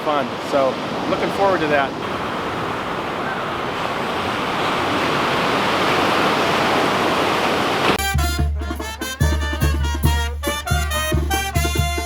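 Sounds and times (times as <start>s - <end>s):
ocean surf rushing: 0.0s - 8.0s
upbeat latin music: 8.0s - 12.0s.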